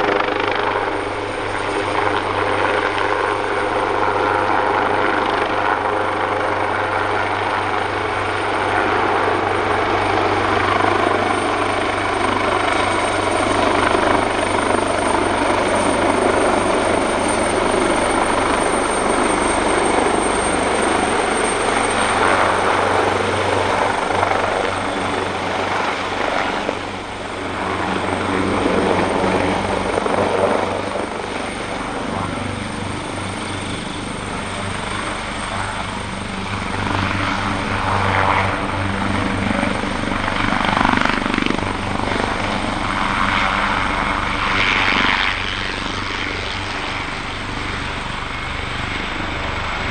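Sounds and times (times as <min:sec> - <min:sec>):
helicopter turbine whine: 0:00.0 - 0:49.9
rotor hum: 0:13.2 - 0:49.9.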